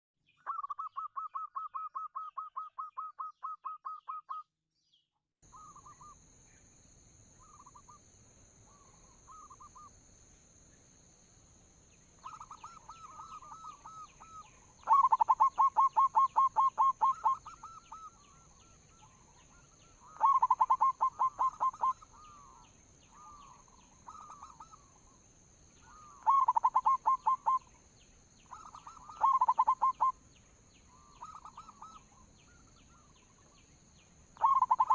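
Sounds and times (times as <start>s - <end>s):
doves cooing: 12.2s - 22.6s, 25.8s - 27.7s, 28.5s - 30.2s, 34.4s - 34.9s.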